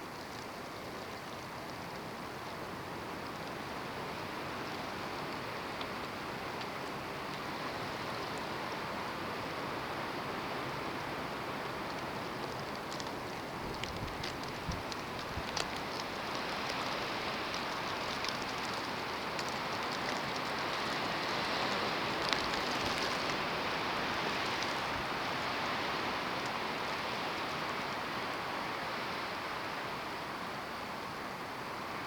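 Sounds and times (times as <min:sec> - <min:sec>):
faint ticks: 0:00.0 - 0:09.1, 0:11.5 - 0:28.0
wind and blowing snow hiss: 0:00.0 - 0:32.0.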